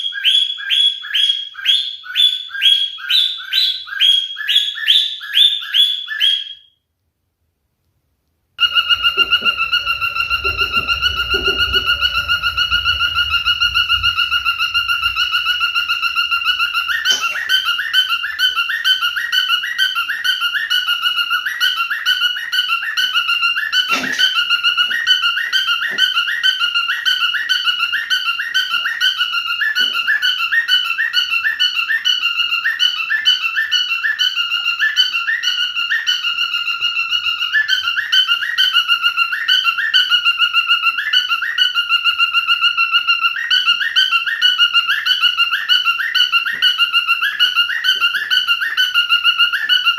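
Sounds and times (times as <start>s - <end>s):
cockatiel whistling warble: 8.6s - 49.9s.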